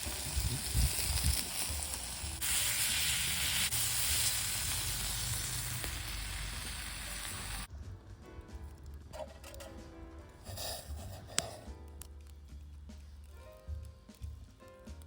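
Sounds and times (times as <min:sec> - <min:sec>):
meat sizzling on a griddle: 0:00.0 - 0:07.7.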